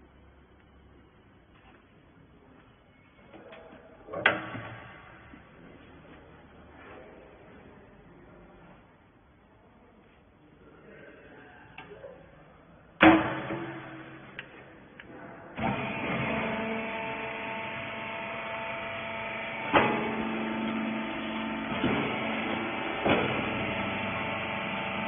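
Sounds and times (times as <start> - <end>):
loud metal clang: 13.0 - 14.4
baler motor and pump humming: 13.0 - 25.0.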